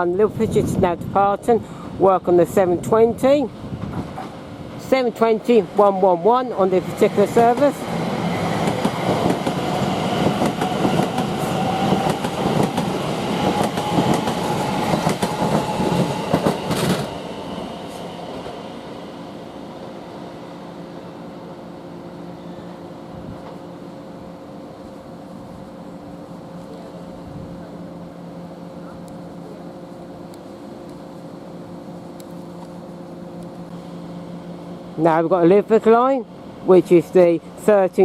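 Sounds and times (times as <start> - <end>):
train motor whine: 5.5 - 35.0
train wheels clicking over rail joints: 7.3 - 17.2.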